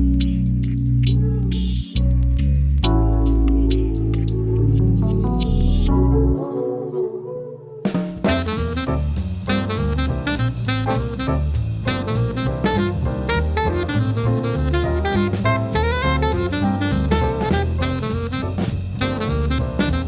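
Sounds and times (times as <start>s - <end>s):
soft music: 0.0s - 7.6s, 8.2s - 20.0s
jazz music with drum beat: 7.9s - 20.0s.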